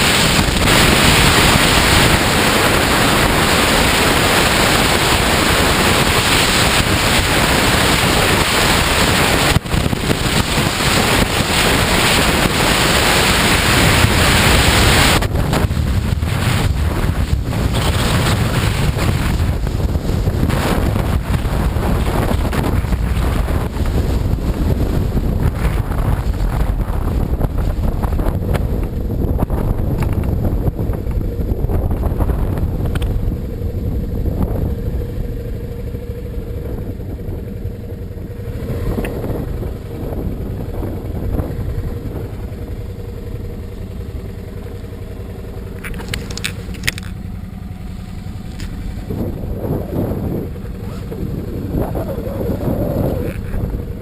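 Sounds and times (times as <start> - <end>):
wind noise on microphone: 0.0 - 43.8, 48.3 - 54.0
motorcycle engine running: 0.0 - 54.0.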